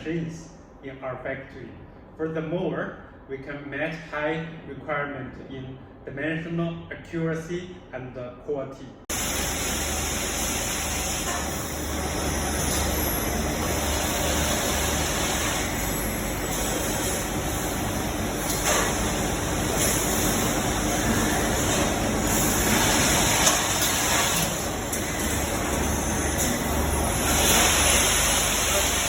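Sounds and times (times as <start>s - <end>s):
automatic machines running: 9.1s - 29.0s.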